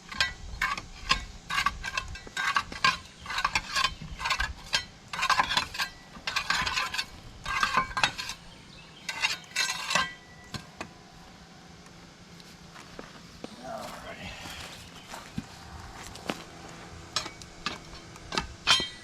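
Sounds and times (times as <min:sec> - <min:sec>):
hand tool scraping mud off tracks: 0:00.0 - 0:08.4, 0:09.0 - 0:10.2.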